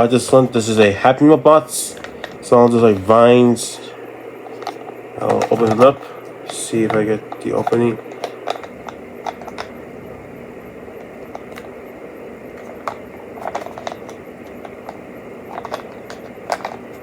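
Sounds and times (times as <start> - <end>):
steady low hum: 0.0 - 17.0
plastic package crinkling: 4.4 - 9.7, 12.6 - 17.0.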